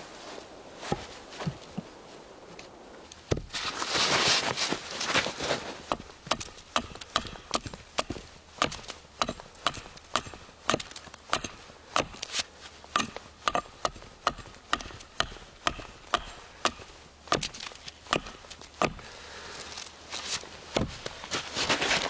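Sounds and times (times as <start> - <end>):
tool chopping into wood: 3.3 - 3.6, 5.9 - 19.1, 20.8 - 21.1.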